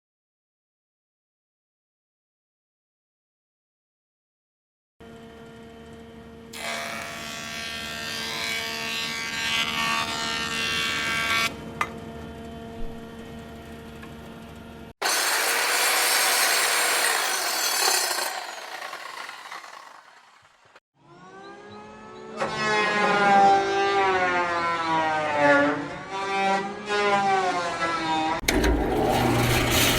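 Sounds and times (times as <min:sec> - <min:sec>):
power tool grinding through wood: 0:15.0 - 0:20.8, 0:28.4 - 0:29.9
power tool motor hum: 0:15.0 - 0:21.1, 0:28.4 - 0:29.9.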